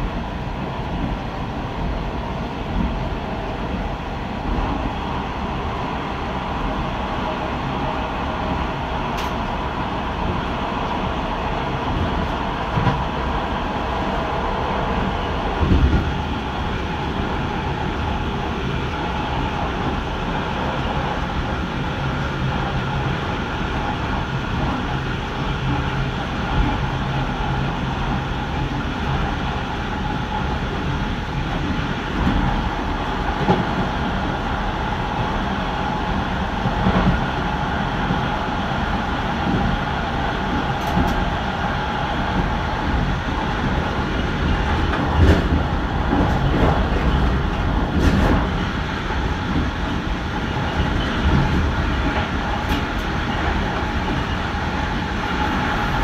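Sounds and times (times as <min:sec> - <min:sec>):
train rolling rumble: 0:00.0 - 0:56.0.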